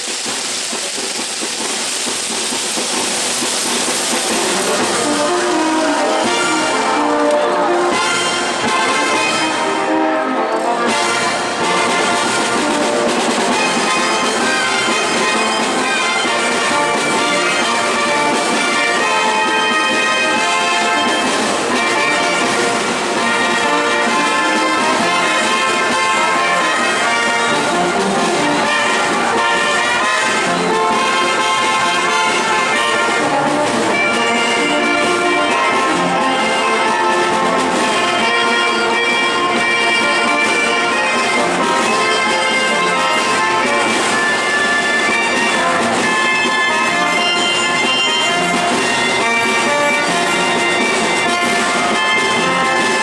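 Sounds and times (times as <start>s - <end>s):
brass band playing: 0.0s - 53.0s.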